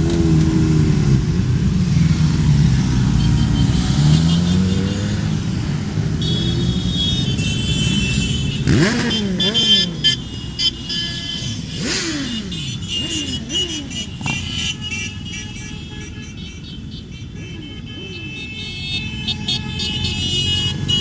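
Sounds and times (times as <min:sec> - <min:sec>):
motorcycles riding past: 0:00.0 - 0:15.2
motorcycle engines revving: 0:00.0 - 0:21.0.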